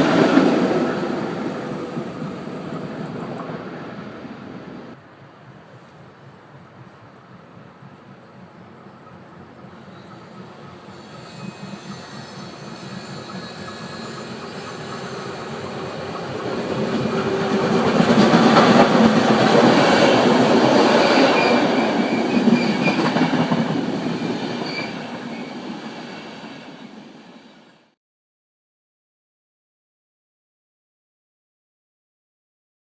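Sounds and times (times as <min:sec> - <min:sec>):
train passing: 0:00.0 - 0:28.0
high wheel squeal: 0:09.8 - 0:16.3, 0:19.8 - 0:23.2, 0:24.0 - 0:27.7.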